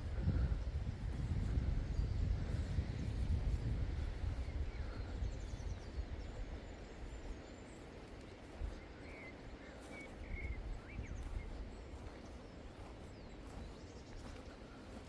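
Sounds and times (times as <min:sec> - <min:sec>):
low rumble on microphone: 0:00.0 - 0:07.2.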